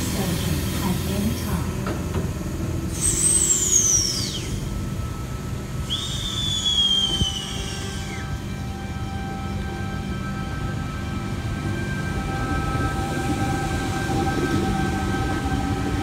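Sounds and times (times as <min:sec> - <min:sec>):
electric train rumbling: 0:00.0 - 0:16.0
high wheel squeals: 0:02.9 - 0:05.2, 0:05.8 - 0:08.6.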